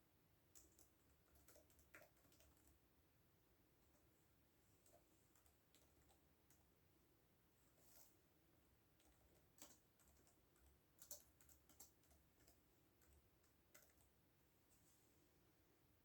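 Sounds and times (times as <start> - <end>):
keyboard typing: 0.6 - 2.8, 4.8 - 6.7, 9.0 - 14.2.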